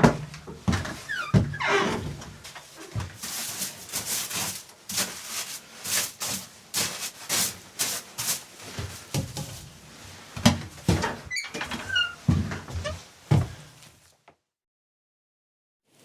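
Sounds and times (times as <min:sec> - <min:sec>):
scraping strokes: 0:03.2 - 0:09.7.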